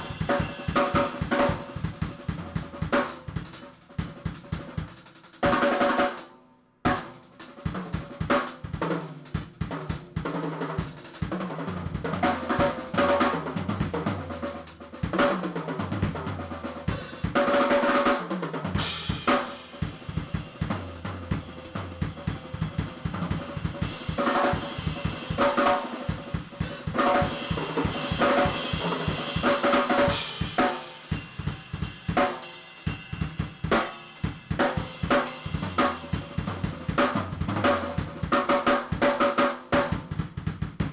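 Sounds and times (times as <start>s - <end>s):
bass drum: 0.0s - 4.8s, 11.2s - 17.4s, 18.7s - 32.3s, 32.9s - 38.7s, 39.8s - 40.9s
snare and tom fills: 0.0s - 6.2s, 6.9s - 40.9s.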